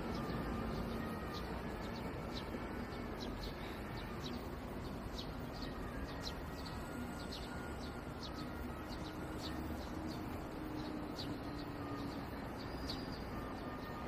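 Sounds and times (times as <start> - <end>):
city and stream hum: 0.0 - 14.0
small birds chirping: 0.0 - 14.0.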